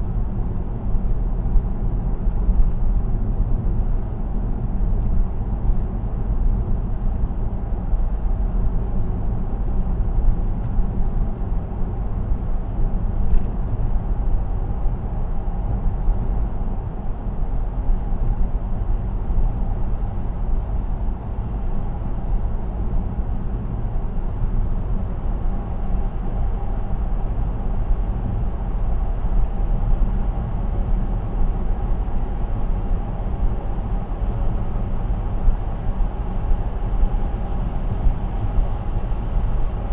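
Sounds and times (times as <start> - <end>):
car road noise rumble: 0.0 - 39.9.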